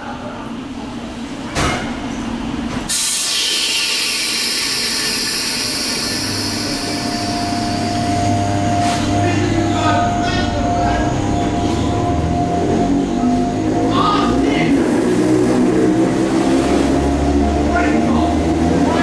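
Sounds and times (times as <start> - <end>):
loud rushing noise: 2.9 - 19.0
electric hum and whine: 6.7 - 15.1.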